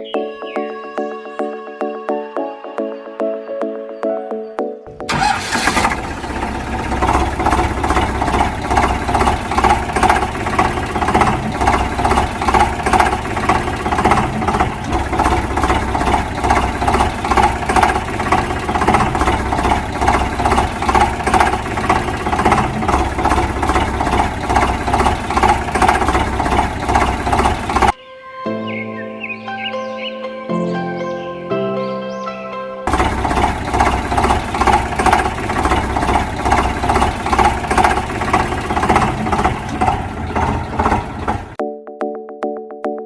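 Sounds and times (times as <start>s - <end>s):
vehicle engine running: 5.1s - 28.0s, 32.9s - 41.6s.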